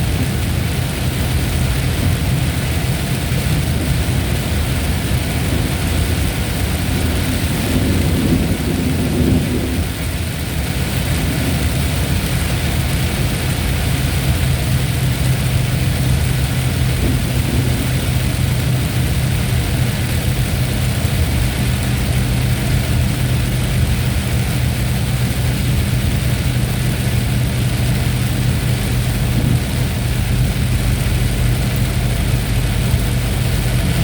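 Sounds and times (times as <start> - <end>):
heavy rain hissing: 0.0 - 34.0
thunder rumble: 0.0 - 34.0.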